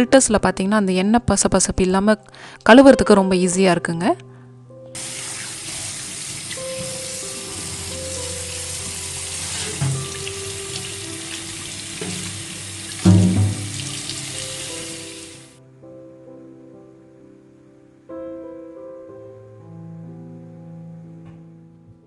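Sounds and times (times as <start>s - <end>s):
soft background music: 0.0s - 22.0s
tap running into a sink: 5.0s - 15.4s
low knocks: 13.0s - 14.1s.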